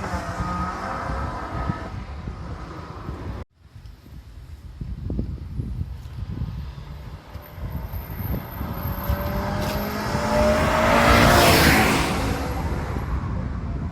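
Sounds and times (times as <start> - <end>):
car accelerating past: 6.6 - 13.3.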